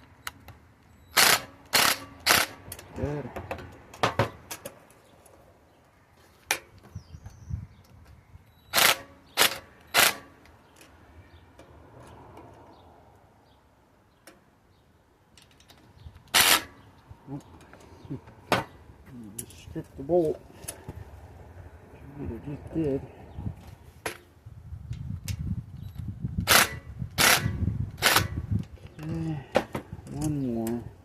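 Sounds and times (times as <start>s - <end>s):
cordless drill bursts: 1.1s - 2.5s.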